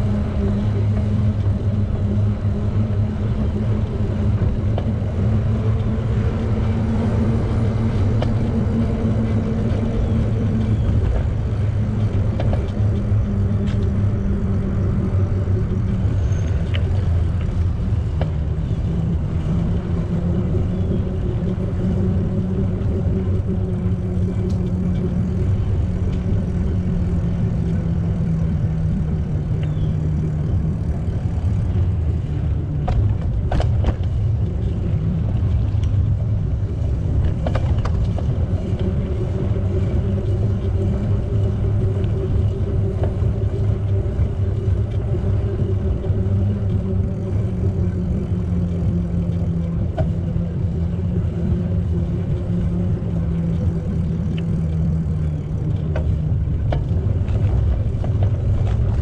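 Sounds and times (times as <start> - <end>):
bicycle tyres rolling on pavement: 0.0 - 59.0
faint clicks: 15.6 - 18.8, 53.2 - 59.0.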